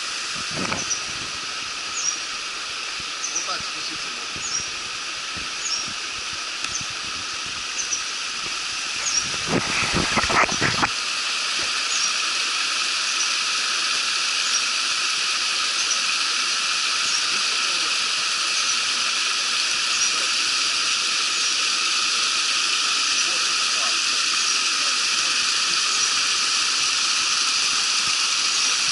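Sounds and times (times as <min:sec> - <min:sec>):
rushing water: 0:00.0 - 0:28.9
short high squeaks: 0:09.0 - 0:09.4.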